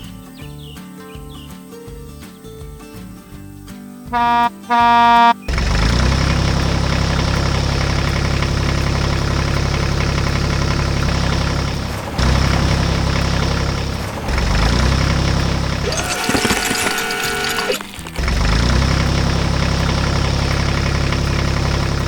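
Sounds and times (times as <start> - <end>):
heavy machinery engine knocking: 5.4 - 22.0.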